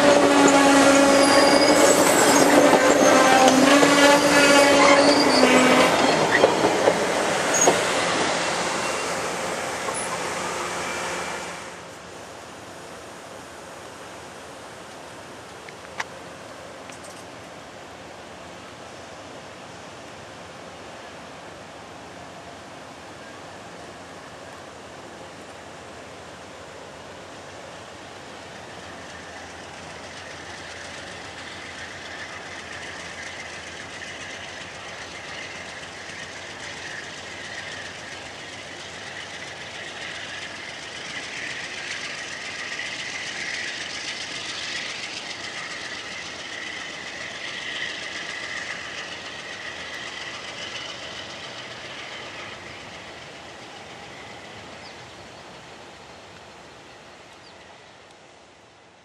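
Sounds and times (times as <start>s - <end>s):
train wheels clickety-clack: 0.0s - 11.3s, 28.4s - 55.6s
high-pitched train whine: 0.0s - 14.8s, 16.8s - 59.0s.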